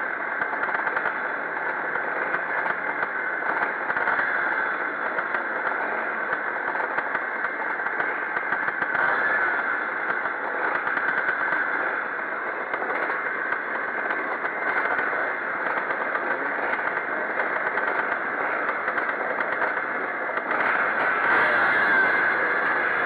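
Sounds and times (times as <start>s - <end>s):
motocross motorcycles racing: 3.4s - 23.0s.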